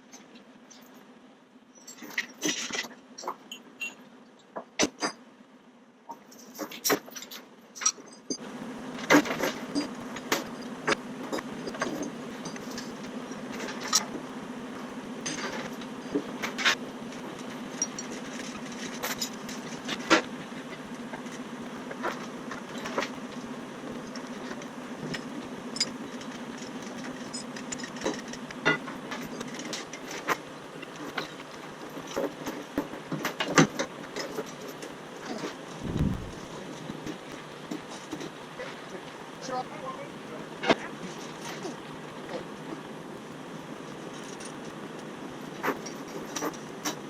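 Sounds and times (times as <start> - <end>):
engine running steadily: 8.3 - 47.0.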